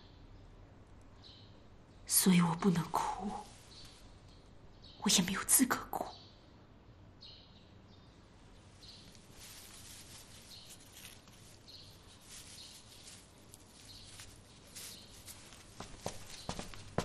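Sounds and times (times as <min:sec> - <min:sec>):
soft rustling: 0:02.8 - 0:04.4, 0:08.3 - 0:17.0.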